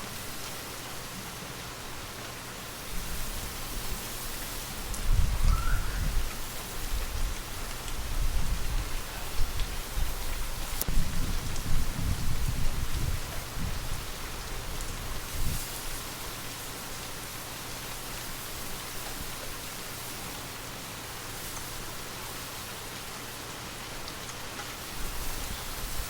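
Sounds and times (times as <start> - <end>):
rain hissing: 0.0 - 26.0
gusty wind buffeting: 4.8 - 15.6.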